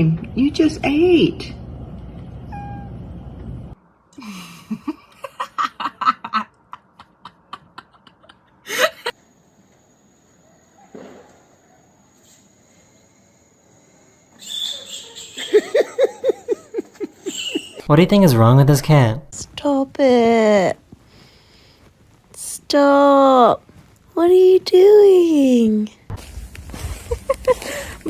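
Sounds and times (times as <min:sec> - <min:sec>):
person laughing: 0:04.2 - 0:09.2, 0:15.4 - 0:17.8, 0:26.8 - 0:28.0.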